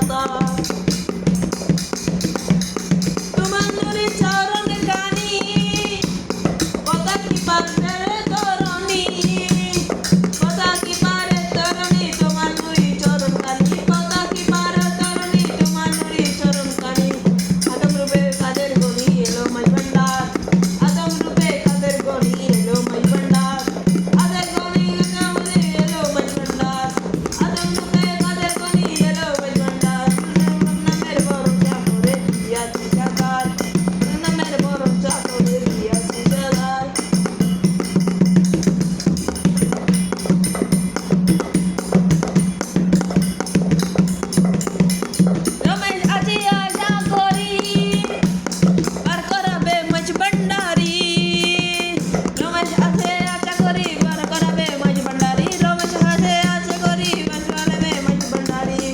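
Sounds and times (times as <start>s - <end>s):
shaken rattling percussion: 0.0s - 58.9s
person singing: 6.9s - 37.3s.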